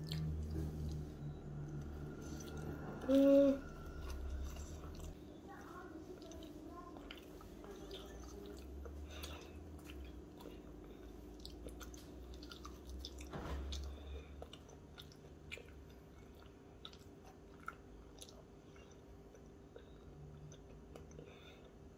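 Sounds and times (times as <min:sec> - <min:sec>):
chewing fried food: 0:00.0 - 0:21.8
thump: 0:13.3 - 0:13.7.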